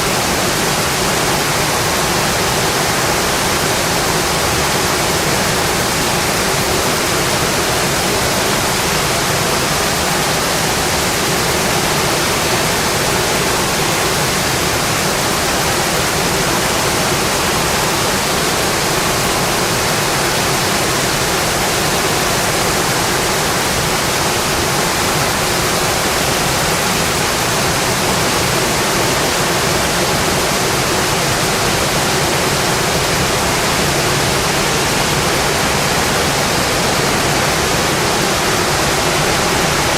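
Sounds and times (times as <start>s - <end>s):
rain on a metal roof: 0.0s - 39.9s.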